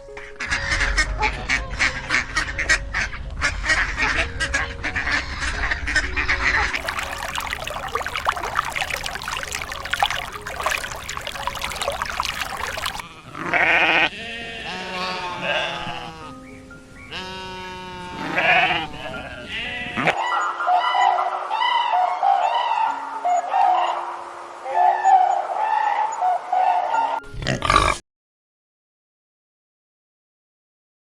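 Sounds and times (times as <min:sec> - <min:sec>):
waterfowl quacking: 0:00.4 - 0:13.0.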